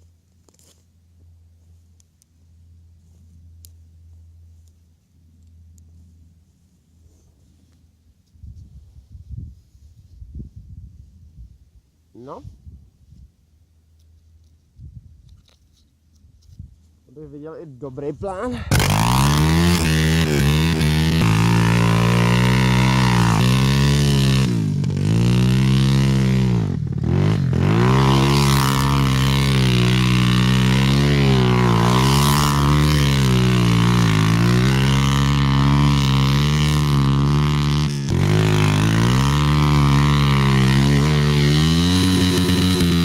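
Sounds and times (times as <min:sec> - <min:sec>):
dirt bike engine revving: 0:18.6 - 0:43.0.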